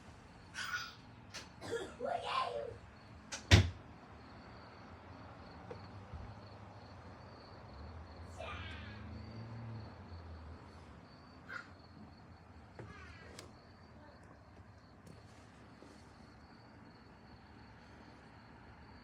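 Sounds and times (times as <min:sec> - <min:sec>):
kittens mewing: 0:11.4 - 0:11.9.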